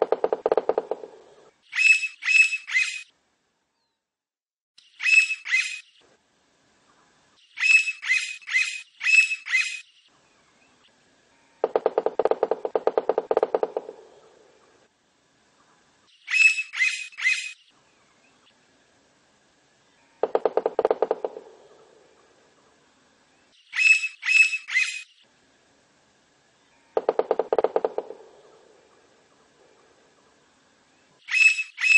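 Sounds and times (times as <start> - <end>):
woodpecker drumming on wood: 0.0 - 1.5, 11.6 - 14.4, 20.2 - 22.3, 27.0 - 30.0
woodpecker calling: 0.0 - 3.1, 5.0 - 5.9, 7.6 - 9.8, 11.6 - 14.8, 16.2 - 17.6, 20.2 - 22.4, 23.7 - 25.2, 26.8 - 30.2, 31.2 - 31.9.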